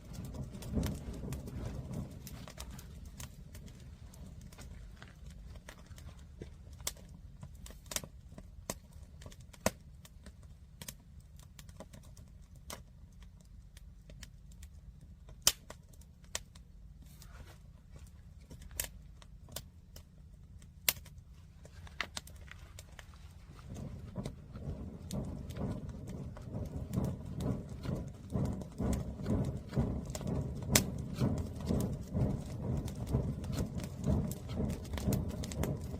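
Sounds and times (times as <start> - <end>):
low rumble: 0.0 - 9.5, 21.2 - 35.9
sharp pops of fire: 0.0 - 35.9
wood fire crackling: 0.0 - 35.9.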